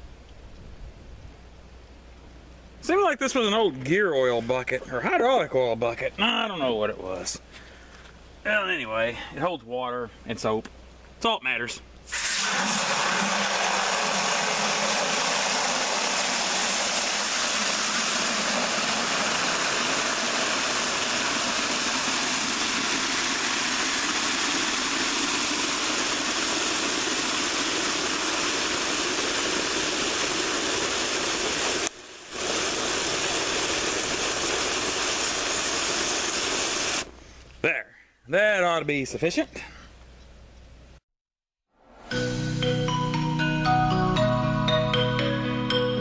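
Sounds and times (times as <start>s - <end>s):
hose water pouring into bucket: 12.1s - 37.1s.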